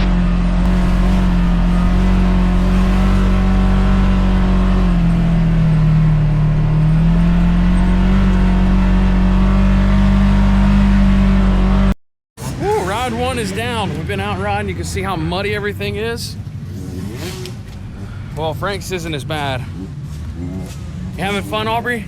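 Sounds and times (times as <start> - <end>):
utility vehicle engine running: 0.0 - 12.0.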